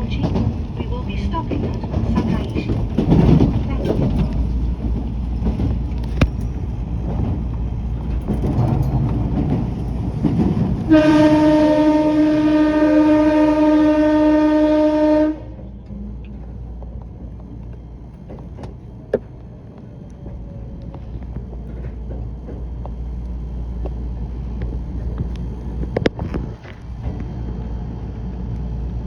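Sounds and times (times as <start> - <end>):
train horn blast: 10.8 - 15.8.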